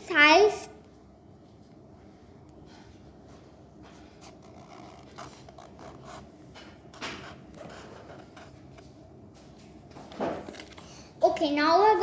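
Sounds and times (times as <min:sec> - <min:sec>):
pencil scratching on paper: 0:04.0 - 0:08.6.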